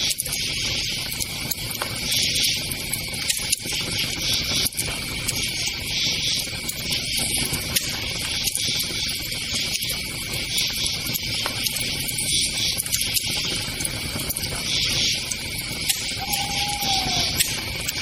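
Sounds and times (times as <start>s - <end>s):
campfire crackling: 1.0s - 18.0s
crickets chirring: 13.4s - 18.0s.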